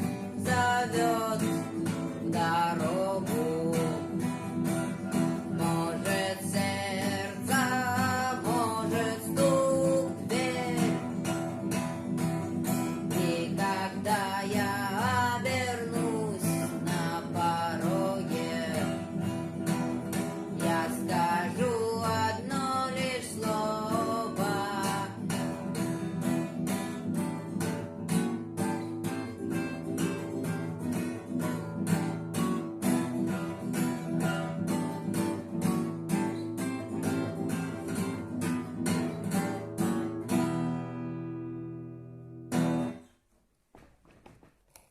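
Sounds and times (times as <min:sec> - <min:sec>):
person singing: 0:00.0 - 0:11.8, 0:12.6 - 0:26.0
acoustic guitar strumming: 0:00.0 - 0:43.1.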